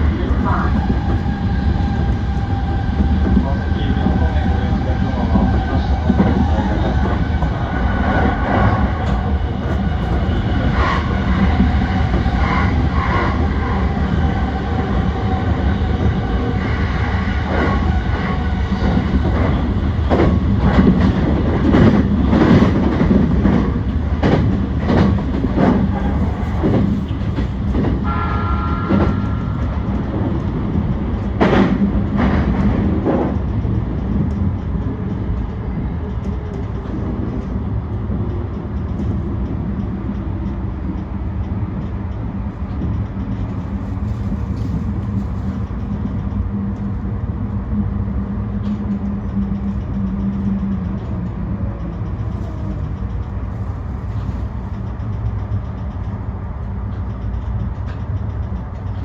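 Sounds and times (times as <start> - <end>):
electric train rumbling: 0.0 - 59.0.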